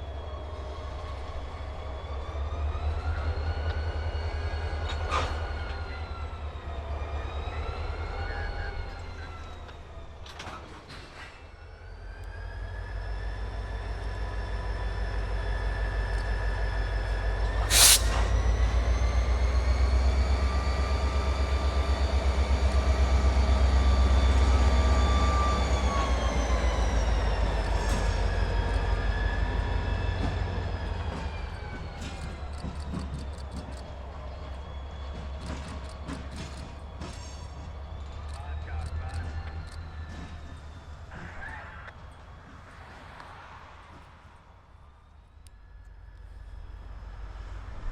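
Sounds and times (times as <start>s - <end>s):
diesel locomotive rumble and whine: 0.0s - 47.9s
faint high wheel squeal: 2.8s - 42.3s
sharp loud clank: 17.7s - 18.3s.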